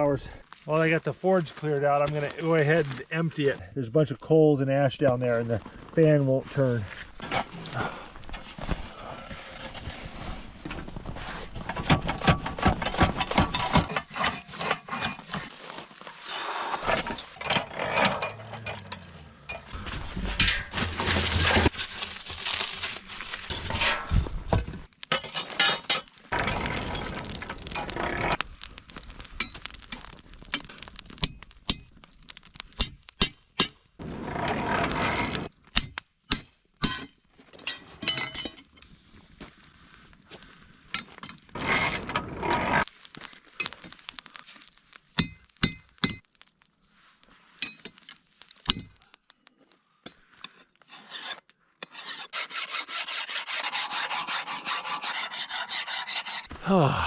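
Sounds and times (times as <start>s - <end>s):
metal clinks and knocks: 17.4s - 20.7s, 36.8s - 38.8s
hand file rasping on steel: 50.9s - 56.5s.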